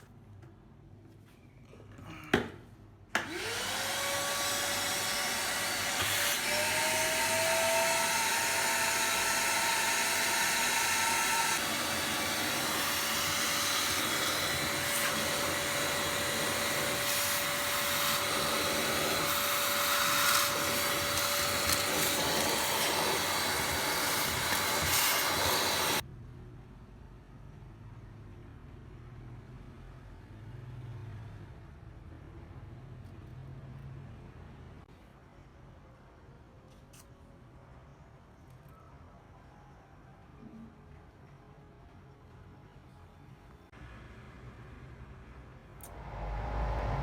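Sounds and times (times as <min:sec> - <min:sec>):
vacuum cleaner motor whining: 0:03.2 - 0:26.0.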